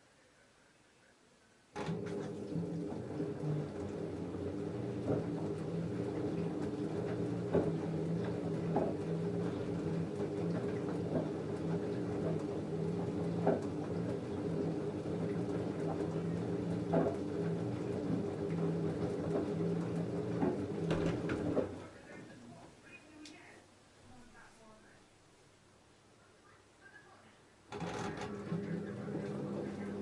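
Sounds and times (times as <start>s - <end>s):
washing machine motor hum: 1.7s - 22.8s, 27.7s - 30.0s
laundry tumbling knocks: 1.9s - 22.0s.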